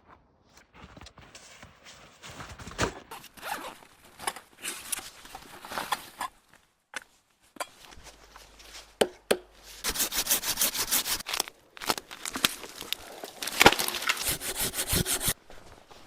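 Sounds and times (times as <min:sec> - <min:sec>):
dry wood cracking and tearing: 0:11.2 - 0:14.5.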